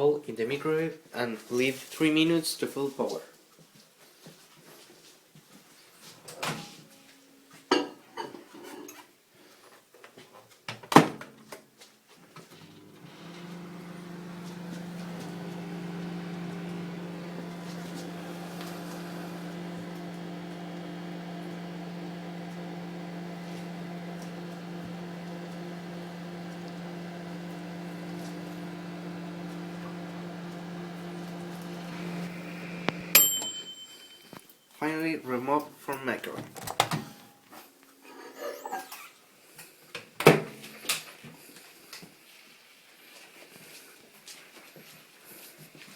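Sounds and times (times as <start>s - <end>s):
microwave oven humming: 12.4s - 34.4s.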